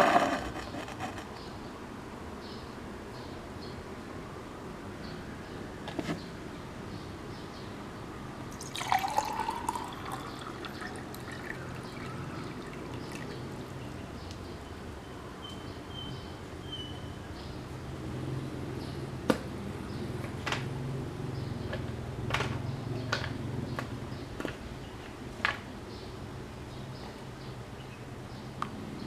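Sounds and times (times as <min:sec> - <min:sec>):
water poured into a glass: 0:08.5 - 0:13.8.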